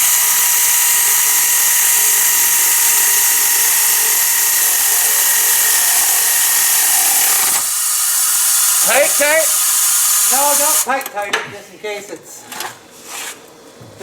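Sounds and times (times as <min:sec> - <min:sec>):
power tool motor whining: 0:00.0 - 0:10.9.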